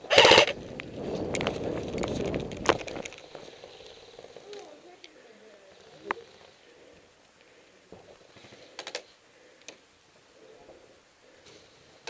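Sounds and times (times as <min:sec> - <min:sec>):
faint sharp clicks: 0:08.6 - 0:09.8.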